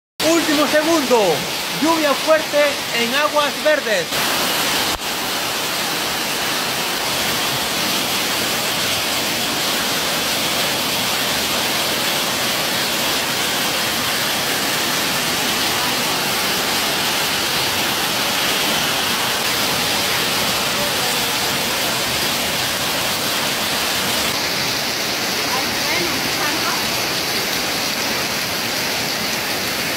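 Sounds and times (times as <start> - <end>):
heavy rain on pavement: 0.2 - 29.9.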